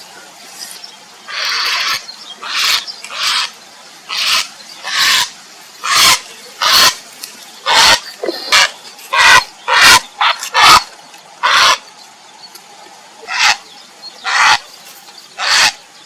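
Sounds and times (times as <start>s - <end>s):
heron harsh croaks: 4.1s - 7.0s, 7.6s - 11.8s, 13.3s - 13.6s, 14.2s - 14.6s, 15.4s - 15.8s.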